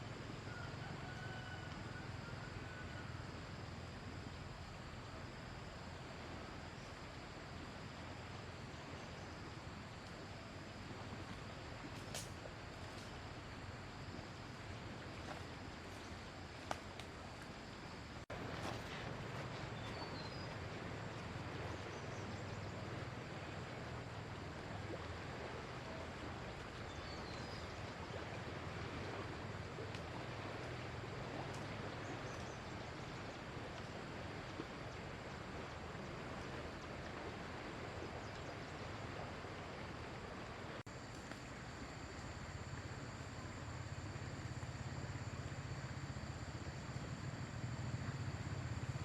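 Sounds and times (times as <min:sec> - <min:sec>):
floodwater rushing: 0:05.3 - 0:40.9.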